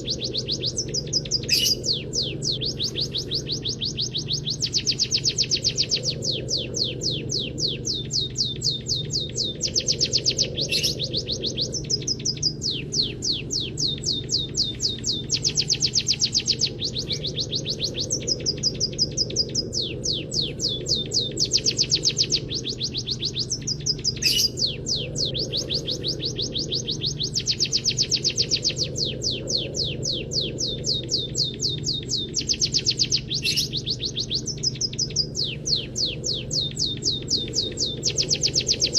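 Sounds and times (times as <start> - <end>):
bird chirps and buzzy trills: 0.0 - 38.9
steady low hum: 0.0 - 38.9.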